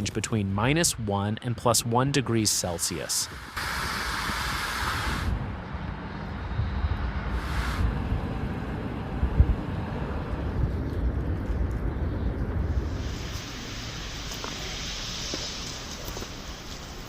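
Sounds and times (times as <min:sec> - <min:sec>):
short hissing bursts: 0:03.3 - 0:05.4, 0:07.4 - 0:07.9, 0:12.8 - 0:16.7
low outdoor rumble: 0:03.3 - 0:17.0.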